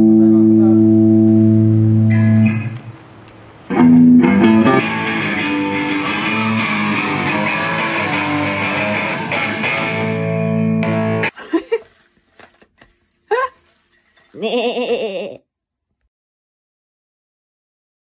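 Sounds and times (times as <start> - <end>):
band music with electric guitar: 0.0 - 3.0, 3.7 - 11.3.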